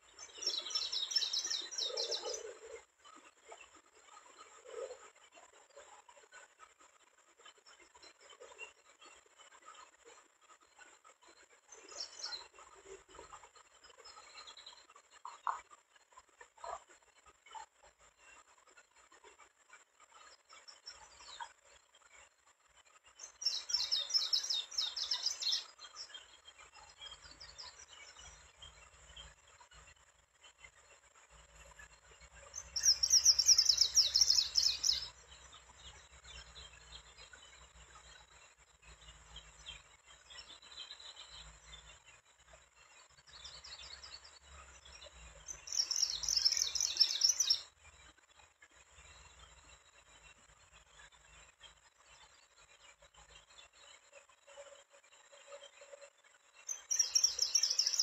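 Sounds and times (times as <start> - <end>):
bird chirping: 0.0 - 2.8, 11.8 - 15.7, 23.1 - 48.1, 48.9 - 58.0.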